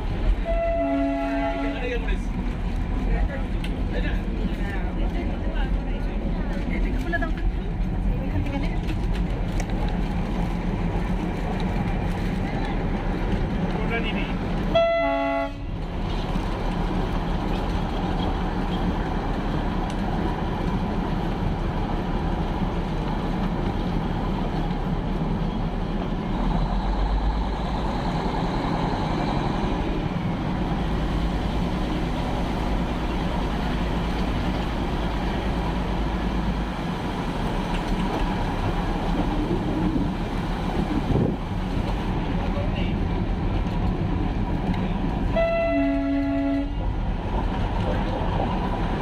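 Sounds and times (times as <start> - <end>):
train rumbling and rattling: 0.0 - 49.0.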